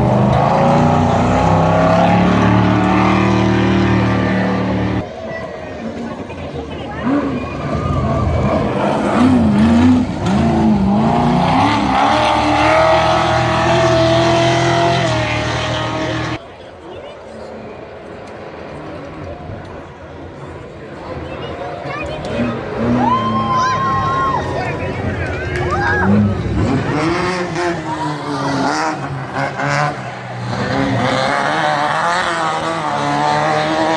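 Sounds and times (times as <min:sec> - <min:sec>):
truck engine revving: 0:00.0 - 0:05.1, 0:06.6 - 0:16.4, 0:22.0 - 0:33.9.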